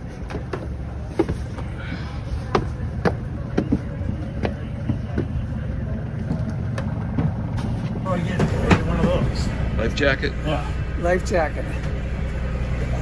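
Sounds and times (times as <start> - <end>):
low rumble: 0.8 - 13.0.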